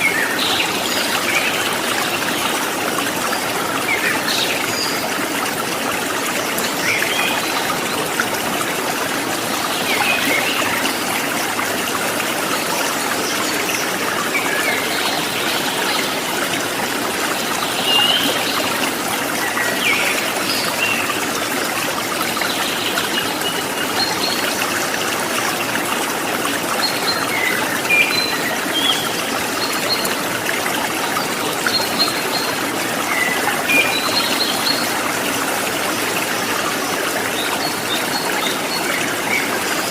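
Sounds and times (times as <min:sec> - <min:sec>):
babbling stream water: 0:00.0 - 0:39.9.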